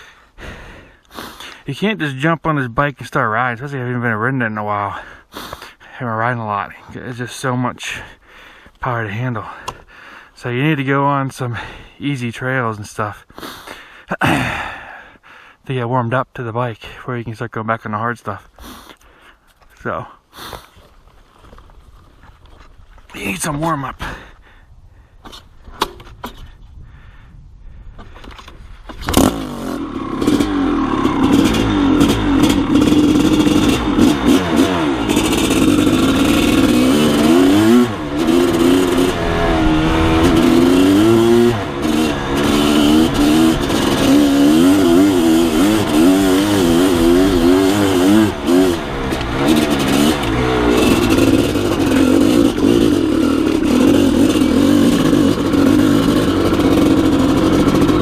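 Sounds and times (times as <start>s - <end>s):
dirt bike engine revving: 29.1s - 58.0s.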